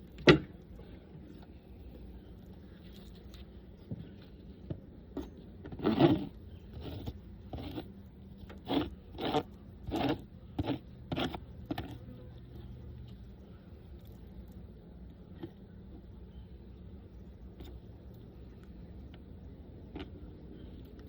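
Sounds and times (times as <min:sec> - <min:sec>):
scraping strokes on beehive frame: 0:05.7 - 0:13.2.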